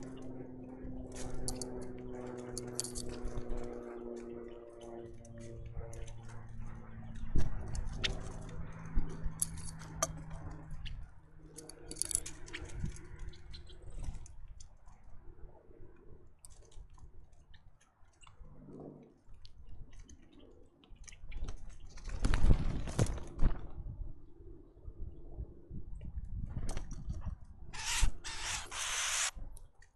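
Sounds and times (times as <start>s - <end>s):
birds pecking and scrabbling: 0.0s - 15.2s, 19.3s - 23.6s, 26.6s - 29.3s.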